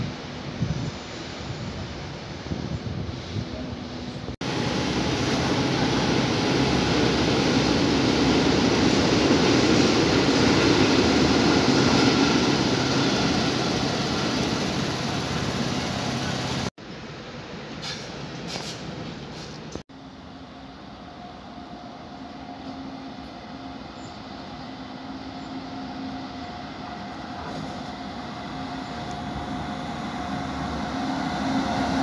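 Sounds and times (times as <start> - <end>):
train rushing rumble: 0.0 - 19.8, 20.6 - 32.0.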